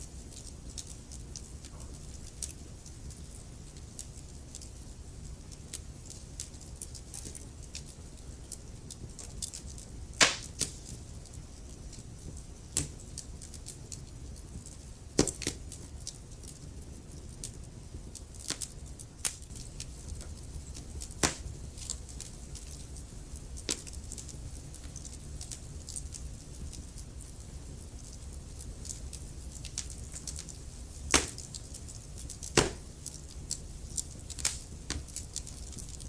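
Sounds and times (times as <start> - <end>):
wood fire crackling: 0.0 - 36.0
fire popping: 0.1 - 36.0.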